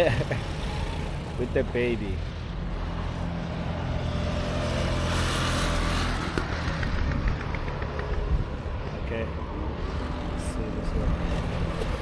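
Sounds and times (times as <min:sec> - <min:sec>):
kart passing by: 0:02.9 - 0:08.7
go-kart engine running: 0:04.0 - 0:08.4.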